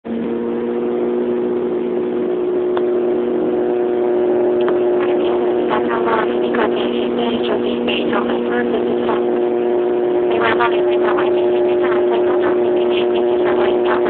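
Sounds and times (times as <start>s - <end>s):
airliner engines droning: 0.1s - 14.0s
voices: 5.0s - 9.5s, 10.2s - 14.0s.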